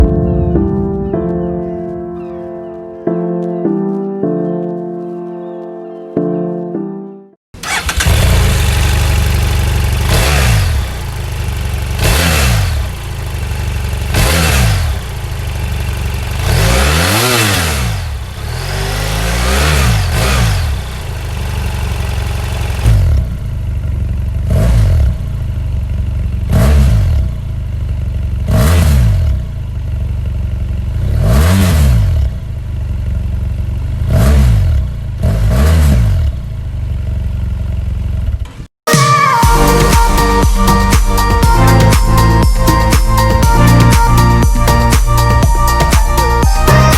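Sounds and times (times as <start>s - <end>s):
motorcycle engine revving: 7.6s - 38.7s.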